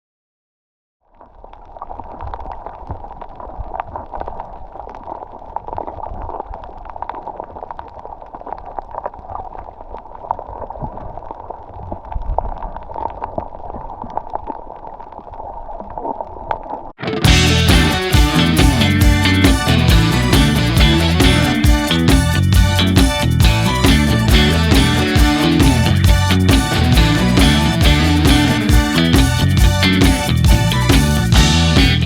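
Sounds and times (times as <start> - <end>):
water gurgling and sloshing: 1.1 - 17.0
low rumble: 17.2 - 32.0.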